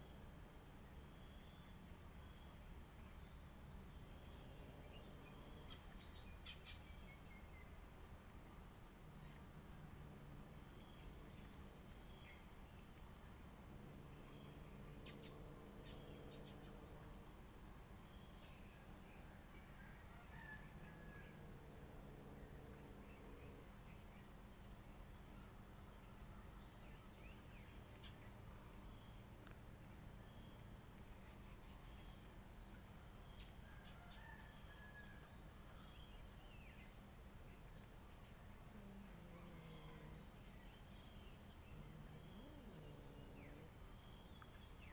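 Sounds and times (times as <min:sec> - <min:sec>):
insects chirring: 0:19.9 - 0:44.9.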